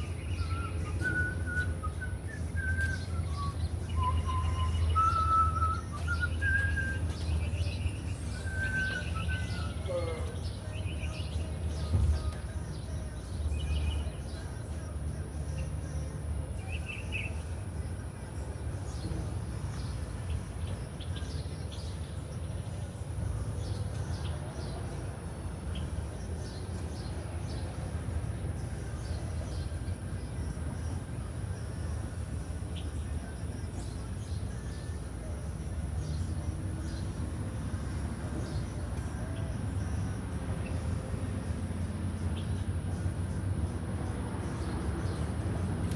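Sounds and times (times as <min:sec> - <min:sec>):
bird chirps: 0:00.0 - 0:12.4.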